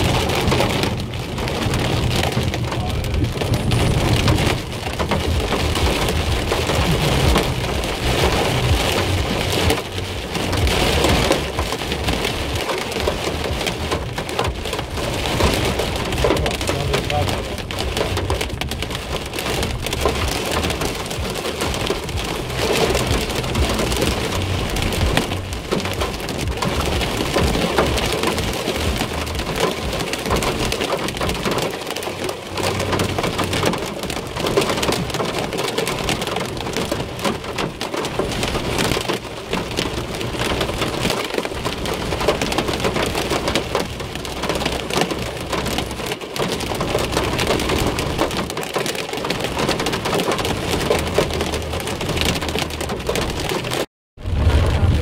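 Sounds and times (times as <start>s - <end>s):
low rumble: 0.0s - 29.6s, 50.6s - 55.0s
heavy rain pelting a car: 0.0s - 55.0s.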